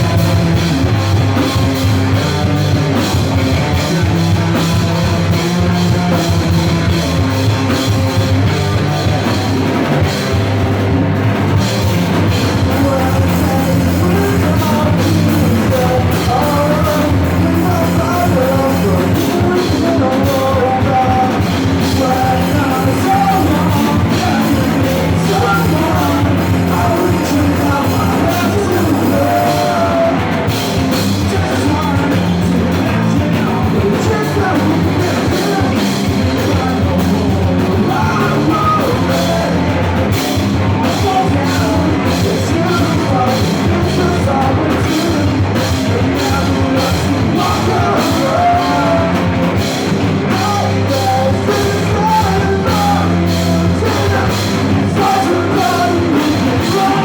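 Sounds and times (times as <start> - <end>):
drums beating: 0.0 - 57.0
rock band playing: 0.0 - 57.0
person singing: 11.6 - 57.0
shouted vocals: 12.1 - 57.0.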